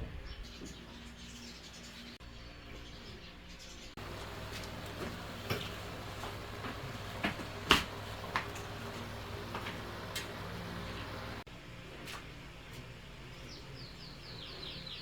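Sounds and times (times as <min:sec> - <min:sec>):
low steady hum: 0:04.0 - 0:11.8.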